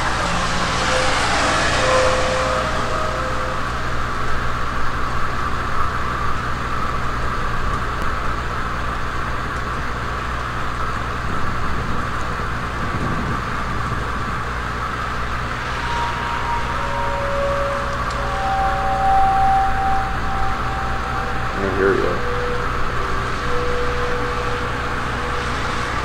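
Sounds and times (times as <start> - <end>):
faint steady tone: 0.0 - 5.0, 14.9 - 26.0
outdoor rumble and hiss: 0.0 - 26.0.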